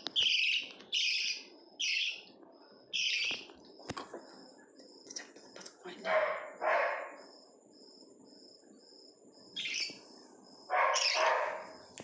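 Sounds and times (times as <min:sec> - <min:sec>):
bird chirping: 0:00.0 - 0:03.6, 0:08.8 - 0:12.0
harsh bird calls: 0:00.1 - 0:02.3, 0:02.9 - 0:03.5, 0:09.6 - 0:10.1, 0:10.7 - 0:11.8.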